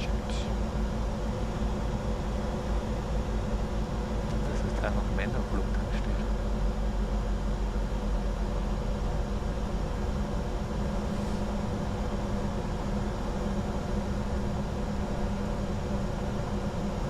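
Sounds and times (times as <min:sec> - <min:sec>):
air-conditioning noise: 0:00.0 - 0:17.0
low steady hum: 0:00.0 - 0:17.0
airflow rush: 0:10.9 - 0:12.4.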